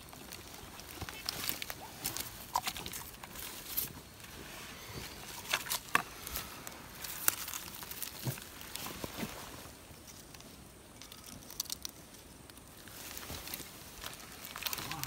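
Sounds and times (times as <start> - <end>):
twigs snapping: 0.0 - 3.9, 5.4 - 9.4, 10.0 - 15.0
footsteps in dry leaves: 12.8 - 15.0.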